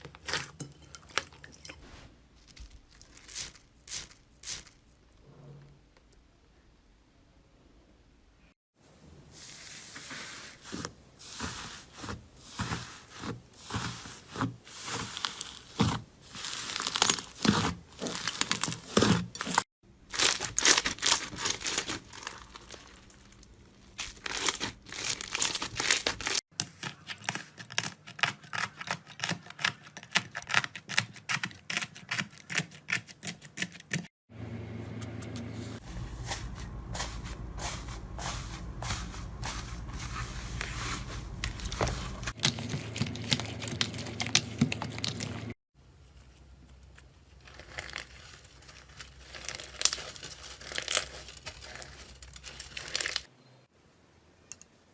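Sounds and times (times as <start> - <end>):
slime squelching and crackling: 10.5 - 28.9, 35.8 - 45.6, 47.0 - 53.3.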